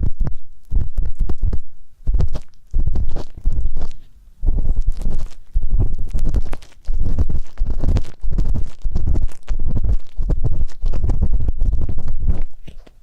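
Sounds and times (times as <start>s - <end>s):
ear pick scratching: 0.0s - 13.0s
rumble of rubbing on microphone: 0.0s - 13.0s.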